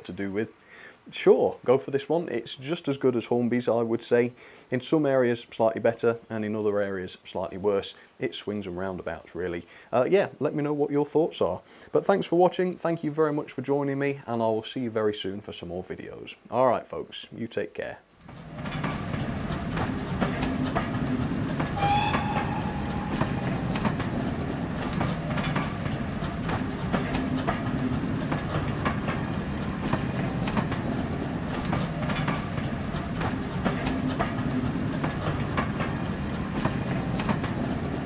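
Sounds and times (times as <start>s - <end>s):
train wheels clattering: 18.2s - 38.0s
short high tone: 21.8s - 23.6s.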